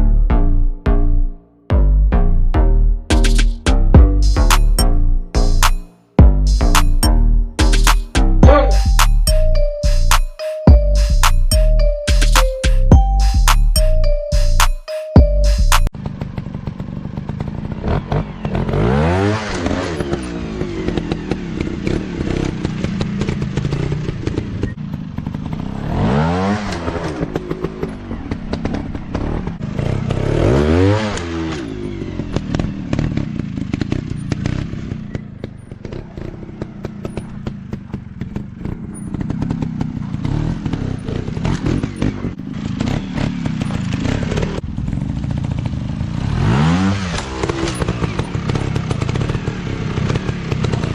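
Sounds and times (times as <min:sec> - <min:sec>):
dirt bike engine revving: 0:15.5 - 0:50.9.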